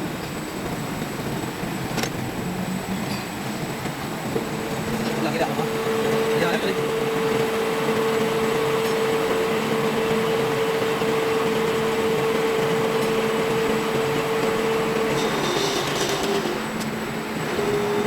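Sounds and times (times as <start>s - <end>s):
machine tool humming: 4.2s - 18.0s.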